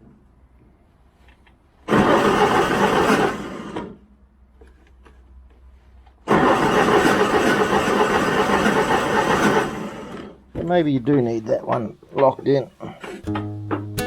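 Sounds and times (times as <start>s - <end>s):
mower engine cranking and starting: 1.3s - 5.2s, 6.1s - 10.7s, 12.8s - 13.4s.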